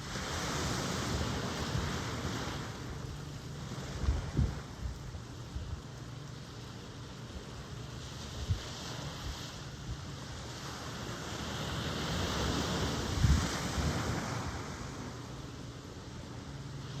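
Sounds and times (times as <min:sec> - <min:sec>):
ocean wave breaking: 0:00.0 - 0:05.5, 0:06.4 - 0:15.4
wind buffeting microphone: 0:00.0 - 0:06.0, 0:11.9 - 0:14.9.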